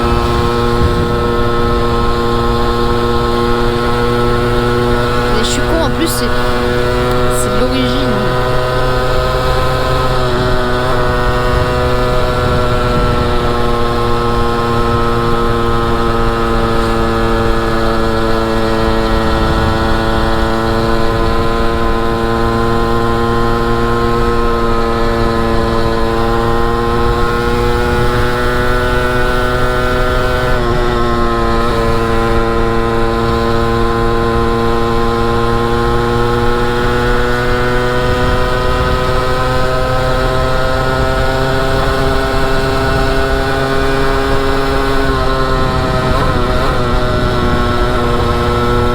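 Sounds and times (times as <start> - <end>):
motorcycle engine running: 0.0 - 5.3, 8.2 - 48.9.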